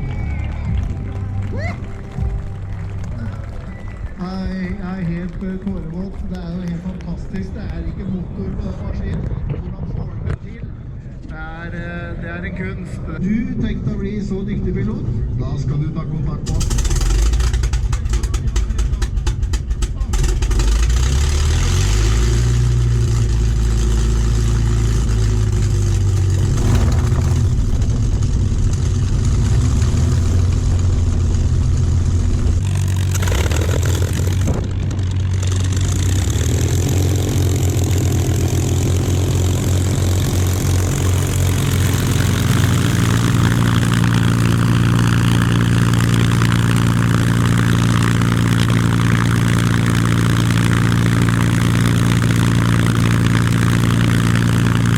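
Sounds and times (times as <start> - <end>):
aircraft piston engines running: 16.4 - 54.9.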